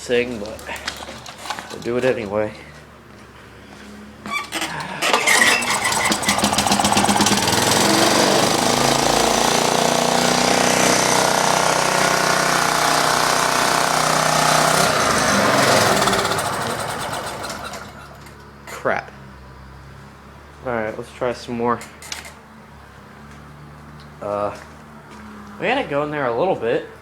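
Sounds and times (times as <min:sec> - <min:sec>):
small gasoline engine running: 0:04.5 - 0:18.3.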